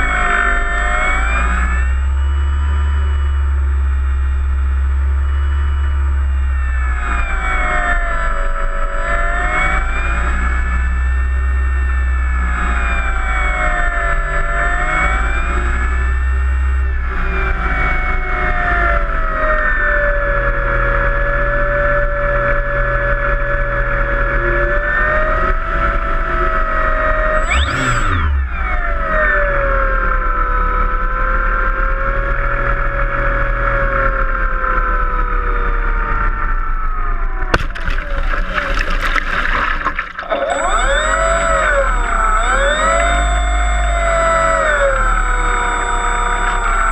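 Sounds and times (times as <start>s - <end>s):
model plane motor whining: 0.0s - 46.9s
low rumble: 36.3s - 46.9s
rushing water-like noise: 37.6s - 40.5s.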